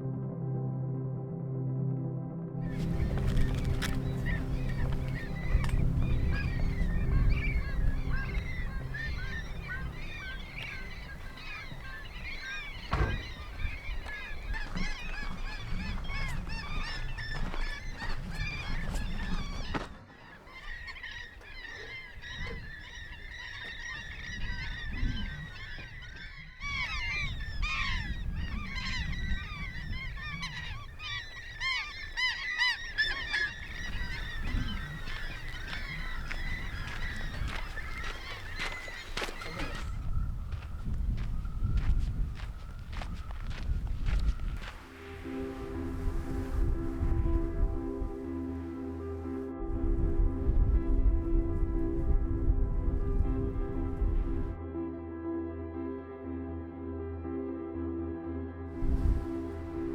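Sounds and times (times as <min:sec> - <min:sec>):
flock of waterbirds calling: 0:02.7 - 0:49.5, 0:58.8 - 0:59.9.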